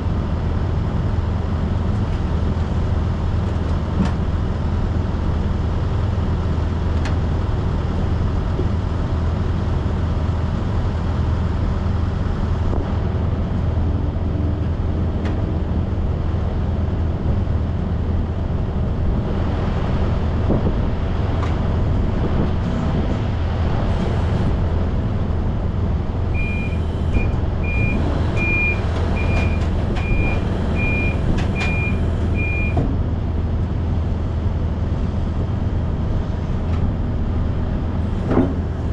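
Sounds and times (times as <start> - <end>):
truck engine and road noise: 0.0 - 38.9
short high electronic beeps: 26.4 - 30.3.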